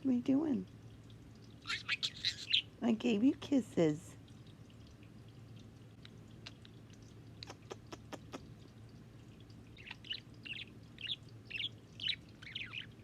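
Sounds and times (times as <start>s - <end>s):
budgerigar chirping: 1.6s - 2.7s, 9.8s - 13.0s.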